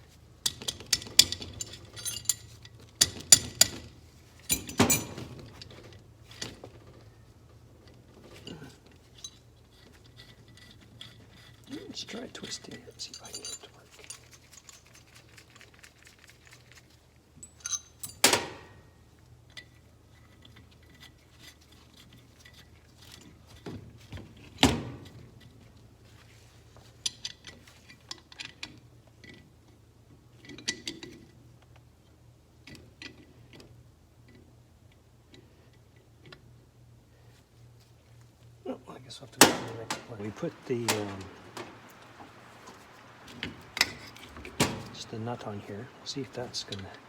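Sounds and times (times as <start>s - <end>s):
metal tools clinking: 0.5s - 6.7s, 8.2s - 15.2s, 17.4s - 18.9s, 39.4s - 47.0s.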